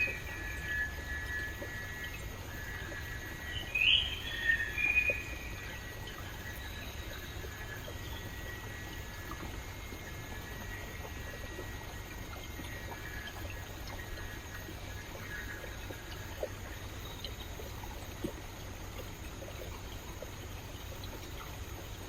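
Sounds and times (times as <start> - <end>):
stream water flowing: 0.0 - 22.0
water plops: 8.8 - 22.0.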